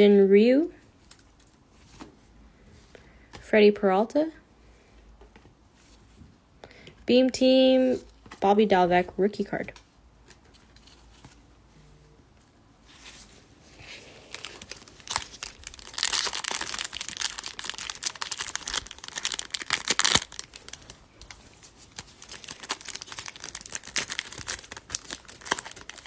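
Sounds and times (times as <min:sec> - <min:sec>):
wrapper crinkling: 0:13.6 - 0:26.0
card pack wrapper tearing: 0:14.0 - 0:26.0.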